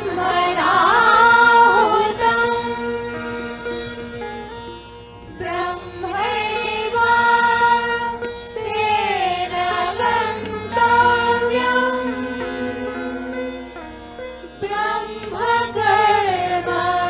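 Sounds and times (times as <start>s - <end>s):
person singing devotional song: 0.0s - 3.1s, 5.4s - 13.5s, 14.6s - 17.0s
steady drone: 0.0s - 4.6s.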